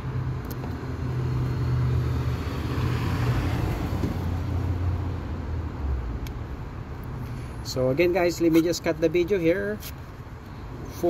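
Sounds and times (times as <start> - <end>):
car passing by: 1.0 - 5.1.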